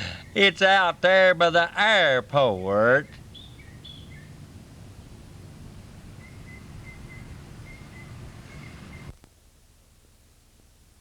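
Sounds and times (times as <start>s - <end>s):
faint high bird chirps: 3.0s - 4.4s, 6.2s - 9.2s.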